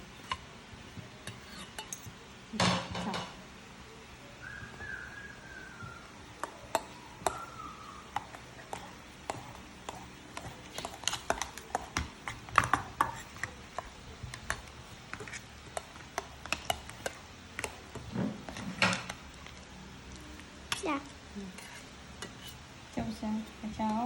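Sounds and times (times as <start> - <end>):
metal utensil tapping a bowl: 6.4 - 15.2.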